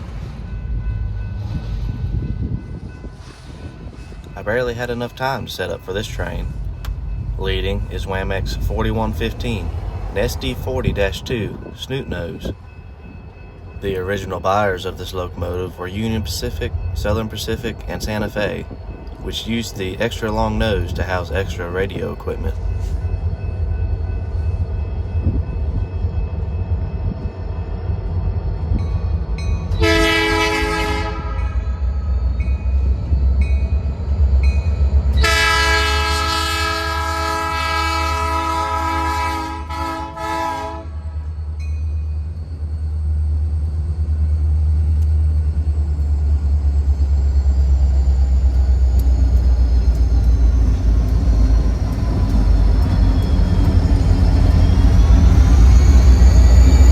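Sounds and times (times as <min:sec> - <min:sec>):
low rumble of engine and train: 0:00.0 - 0:56.9
locomotive horn blasts: 0:29.8 - 0:31.7, 0:35.2 - 0:41.1.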